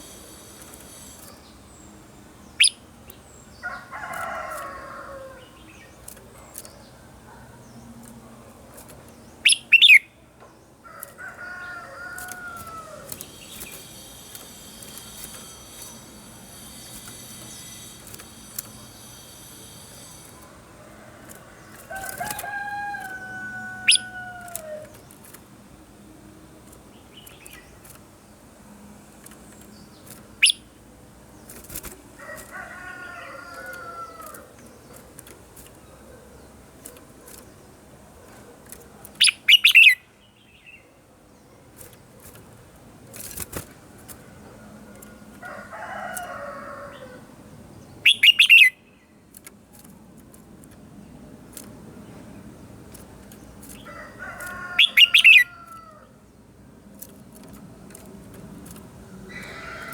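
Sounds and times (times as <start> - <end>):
bird whistling song: 2.6 - 2.8, 9.4 - 10.2, 30.4 - 30.7, 39.2 - 40.1, 48.0 - 48.8, 54.8 - 55.5.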